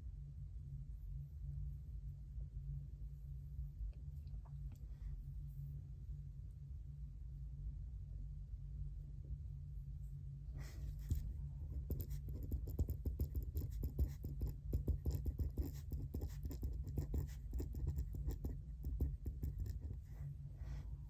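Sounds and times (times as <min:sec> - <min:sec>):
steady low hum: 0:00.0 - 0:21.0
pen writing on paper: 0:11.0 - 0:20.1.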